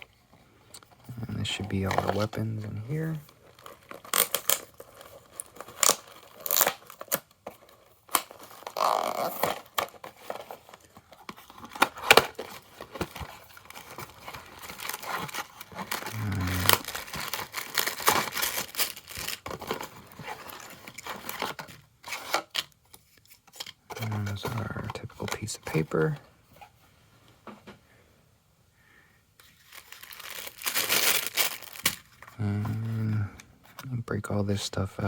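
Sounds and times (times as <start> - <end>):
packaging tearing and crinkling: 1.4 - 26.2, 29.5 - 32.4.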